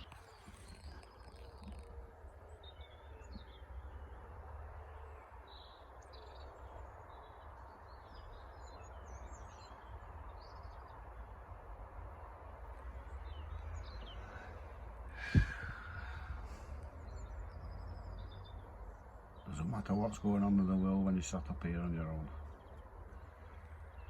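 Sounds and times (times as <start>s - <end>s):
small birds chirping: 0.0s - 24.0s
wind rumble on microphone: 9.8s - 19.8s.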